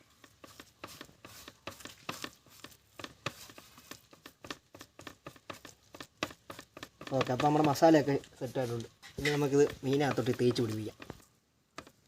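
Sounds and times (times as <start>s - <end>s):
spice paste mixing in bowl: 0.0s - 12.0s.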